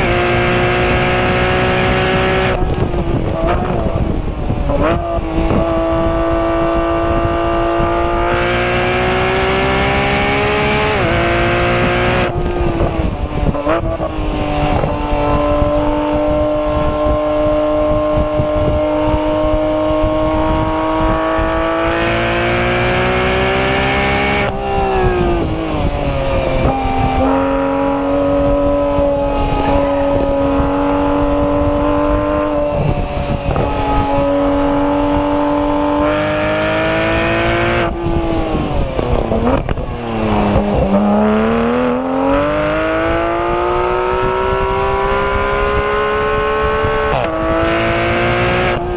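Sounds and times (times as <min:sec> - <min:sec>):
race car exhaust at speed: 0:00.0 - 0:48.9.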